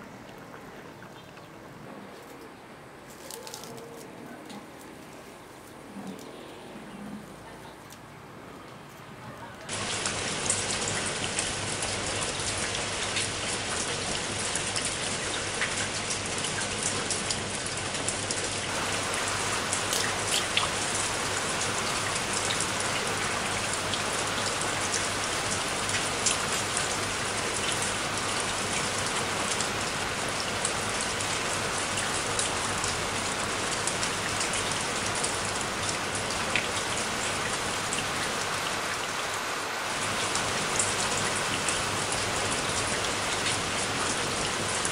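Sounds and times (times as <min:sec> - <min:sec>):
rain on leaves: 0:03.0 - 0:06.7, 0:07.4 - 0:44.9.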